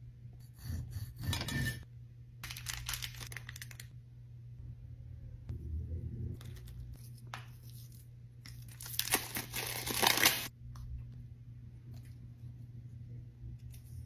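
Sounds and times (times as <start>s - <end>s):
faint low hum: 0.0s - 9.5s, 10.5s - 14.0s
packaging crinkling and tearing: 2.4s - 3.9s, 8.5s - 10.5s.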